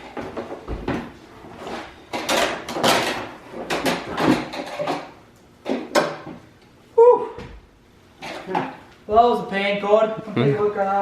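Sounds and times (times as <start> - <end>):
plastic panels scraping and rattling: 0.0 - 6.3.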